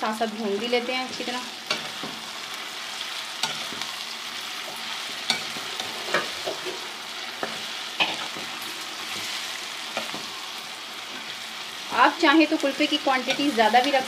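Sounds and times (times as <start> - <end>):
food sizzling in oil: 0.0 - 14.0
spoon scraping a pot: 4.7 - 8.5.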